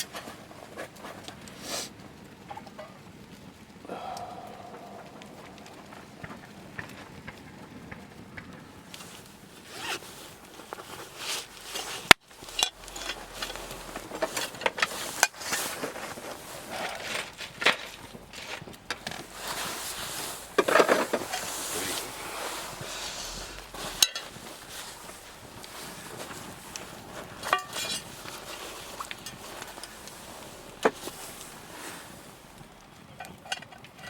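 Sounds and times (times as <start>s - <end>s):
rasping and scraping strokes: 10.8s - 32.4s.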